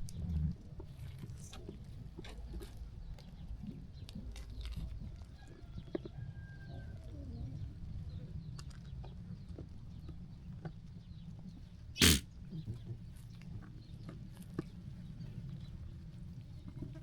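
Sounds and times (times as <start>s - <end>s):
faint thin bird whistle: 12.0s - 12.2s.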